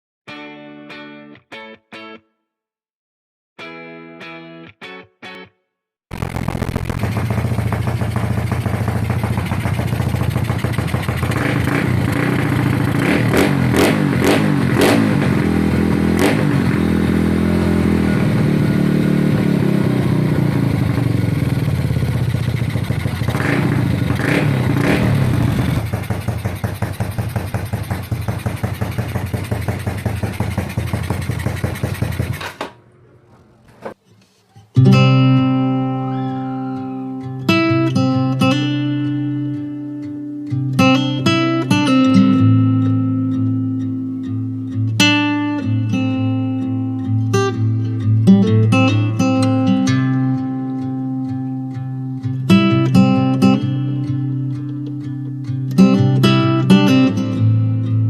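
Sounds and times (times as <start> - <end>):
guitar music: 0.3 - 2.4, 3.6 - 7.8, 11.4 - 22.1, 34.6 - 58.0
motorcycle engine idling and revving: 6.2 - 32.9.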